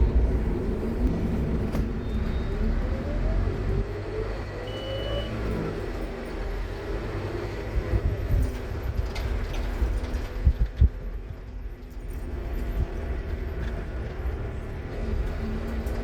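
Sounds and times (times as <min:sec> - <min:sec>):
bus diesel engine rumbling: 0:00.0 - 0:16.0.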